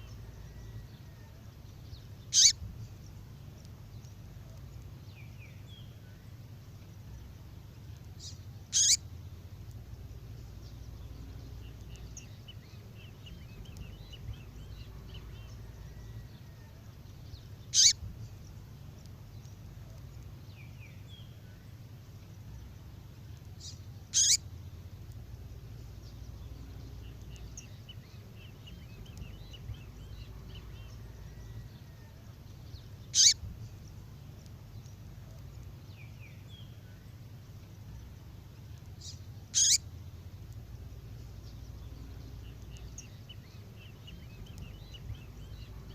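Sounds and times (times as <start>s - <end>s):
faint bird twittering: 0.0s - 45.9s
steady low hum: 0.0s - 45.9s
songbird high sharp calls: 2.2s - 2.7s, 8.2s - 9.2s, 17.6s - 18.1s, 23.6s - 24.5s, 33.0s - 33.5s, 39.0s - 39.9s.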